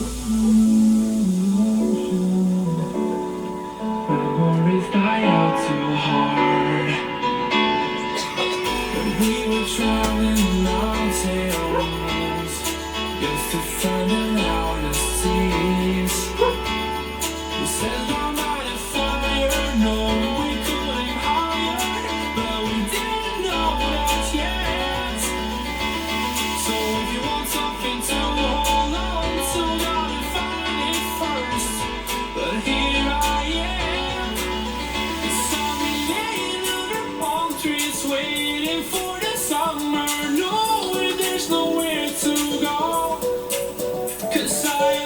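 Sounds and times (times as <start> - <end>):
deep bass line: 0.0 - 3.1, 8.6 - 36.8
pop song with guitar over speakers: 0.0 - 45.0.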